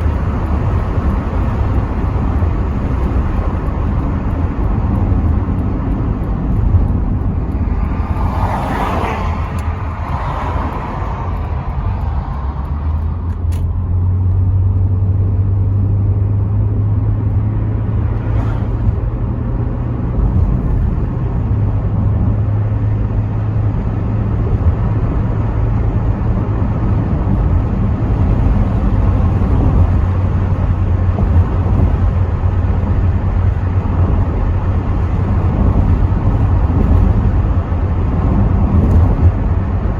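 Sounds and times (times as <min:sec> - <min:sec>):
rush of noise: 0:00.0 - 0:13.8
car engine drone: 0:00.0 - 0:39.9
road rumble: 0:00.0 - 0:39.9
wind noise: 0:00.0 - 0:39.9.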